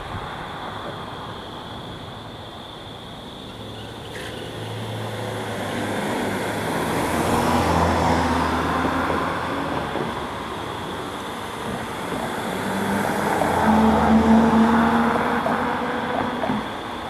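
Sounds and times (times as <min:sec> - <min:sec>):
diesel train engine drone: 0:00.0 - 0:17.0
rail noise: 0:00.0 - 0:17.0.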